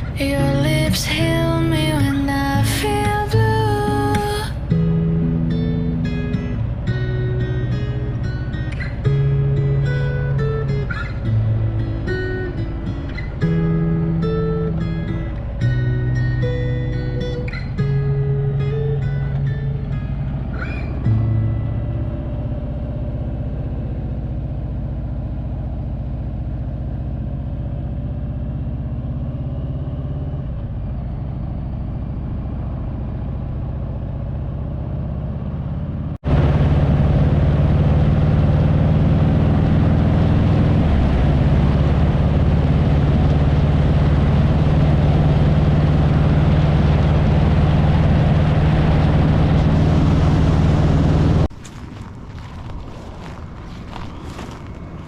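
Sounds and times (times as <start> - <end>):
motorcycle engine cruising: 0.0 - 55.0
road noise: 0.0 - 55.0.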